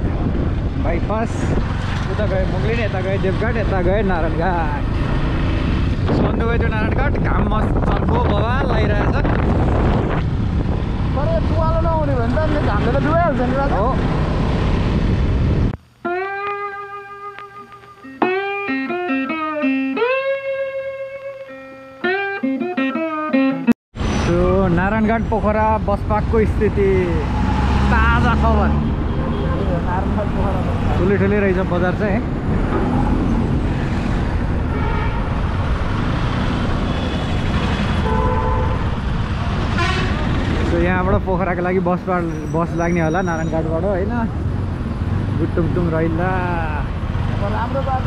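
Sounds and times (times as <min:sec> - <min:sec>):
wind rush on microphone: 0:00.0 - 0:15.8, 0:28.8 - 0:42.4
motorcycle road noise: 0:00.0 - 0:18.0, 0:24.0 - 0:48.0
town traffic: 0:00.0 - 0:20.5, 0:23.6 - 0:48.0.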